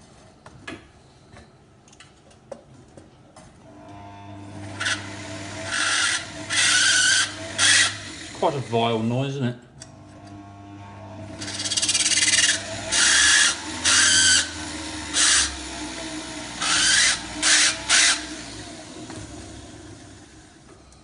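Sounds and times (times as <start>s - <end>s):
faint motor whine: 3.6s - 9.2s, 9.8s - 21.0s
power drill drilling into metal: 4.6s - 8.8s, 11.2s - 20.4s.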